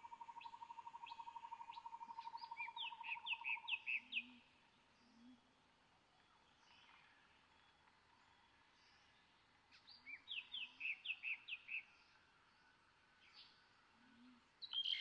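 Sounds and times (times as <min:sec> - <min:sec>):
down-slurred bird chirps: 0:00.0 - 0:04.4
soft low bird calls: 0:00.0 - 0:15.0.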